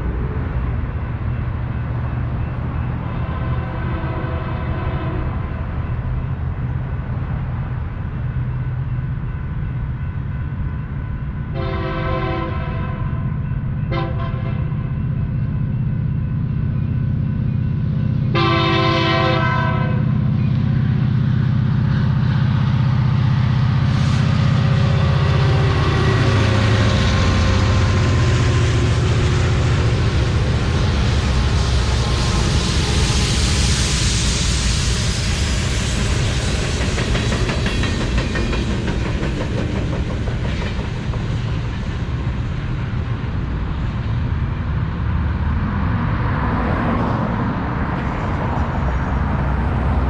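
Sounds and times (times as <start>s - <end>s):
diesel locomotive engines droning: 0.0s - 50.0s
train wheels on rail: 0.0s - 50.0s
train horn blasts: 3.4s - 5.5s, 11.5s - 13.2s, 13.9s - 14.9s, 18.3s - 20.2s.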